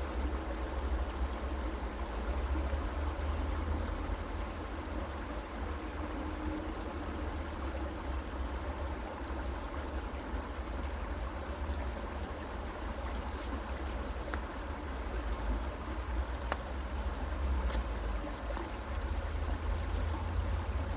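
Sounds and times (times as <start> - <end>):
creek water flowing: 0.1 - 20.9
faint ticks: 13.2 - 14.7.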